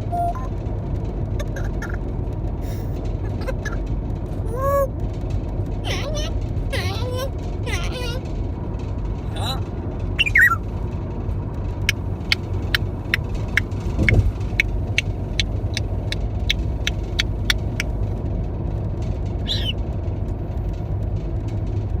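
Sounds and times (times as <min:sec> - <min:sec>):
steady low rumble: 0:00.0 - 0:22.0
parrot chirping call: 0:05.9 - 0:07.1, 0:10.2 - 0:10.6, 0:19.5 - 0:19.8
sharp evenly spaced clicks: 0:11.6 - 0:18.0.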